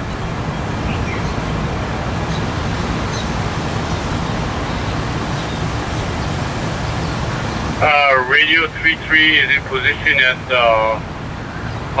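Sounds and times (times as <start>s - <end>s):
constant hiss: 0.0s - 12.0s.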